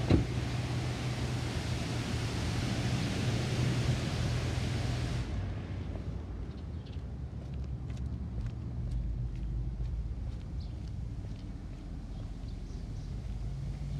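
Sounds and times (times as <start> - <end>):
thump: 0.0 - 0.4
car wash equipment hissing: 0.0 - 5.4.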